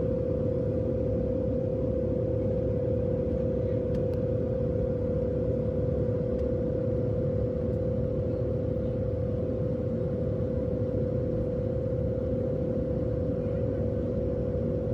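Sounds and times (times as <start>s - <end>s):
constant mid-pitched hum: 0.0s - 14.9s
jet engine rumble: 0.0s - 14.9s.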